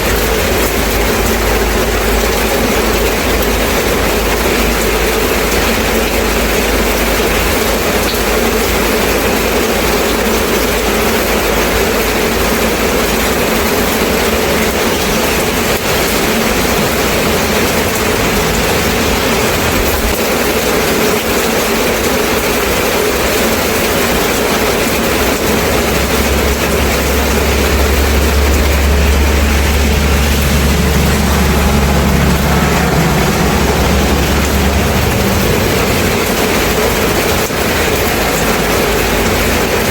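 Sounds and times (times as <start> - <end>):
steady rain: 0.0 - 39.9
low rumble: 13.5 - 20.6, 24.4 - 39.9.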